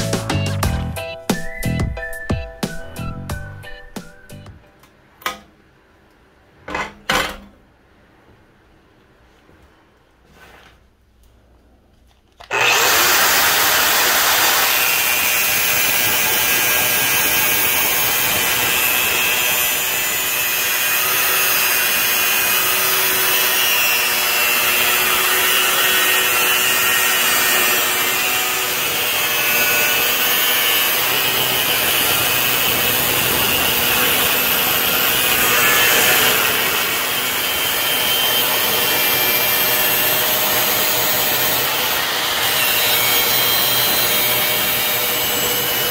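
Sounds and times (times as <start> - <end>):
angle grinder cutting steel: 12.4 - 45.9.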